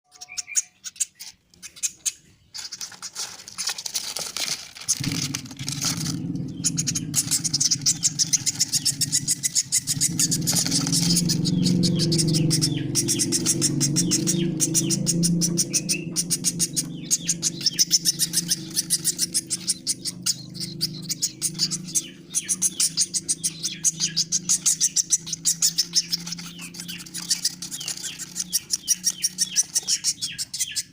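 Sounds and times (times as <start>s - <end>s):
nestlings begging calls: 0.1s - 30.9s
steady low hum: 4.8s - 30.9s.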